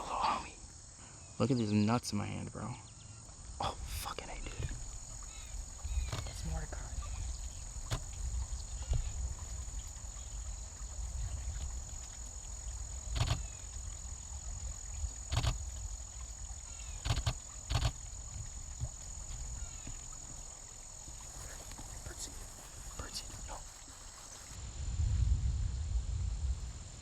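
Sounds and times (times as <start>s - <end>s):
faint bird chirps: 0.0s - 11.7s, 19.2s - 24.6s
insect trill: 0.0s - 27.0s
wind on microphone: 4.3s - 20.1s, 24.2s - 27.0s.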